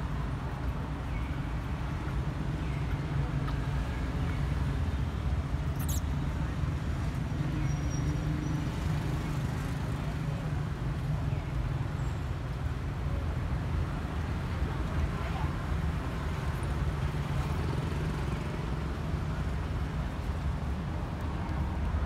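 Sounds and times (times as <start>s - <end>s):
faint high squeak: 5.8s - 6.1s.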